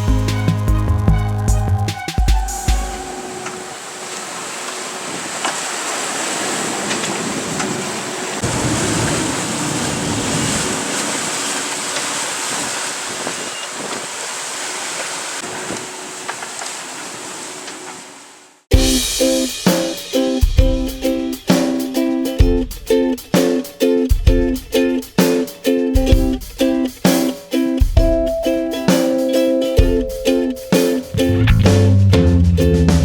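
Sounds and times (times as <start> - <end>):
rushing sea water: 1.9 - 32.1
wind buffeting microphone: 6.4 - 14.3.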